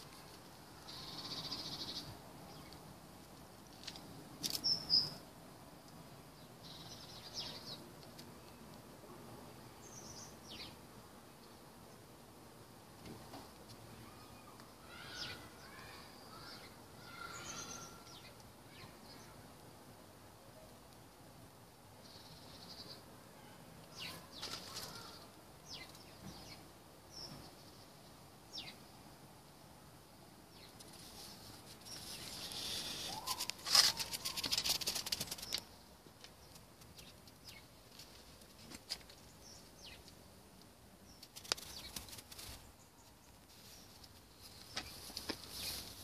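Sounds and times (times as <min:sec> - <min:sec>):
birds chirping: 0:00.7 - 0:02.9, 0:03.6 - 0:05.2, 0:14.0 - 0:19.4, 0:22.0 - 0:29.0, 0:30.5 - 0:37.8
rapid flutter-like clicks: 0:33.3 - 0:35.7, 0:41.2 - 0:42.6.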